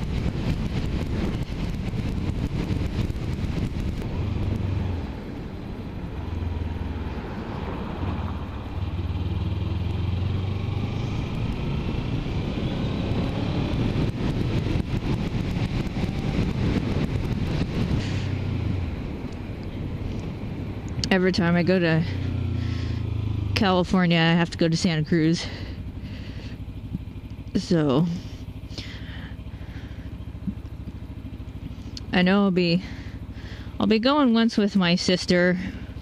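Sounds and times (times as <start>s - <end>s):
wind noise on microphone: 0.0s - 5.2s, 10.8s - 21.1s
motorcycle engine running: 0.0s - 36.0s.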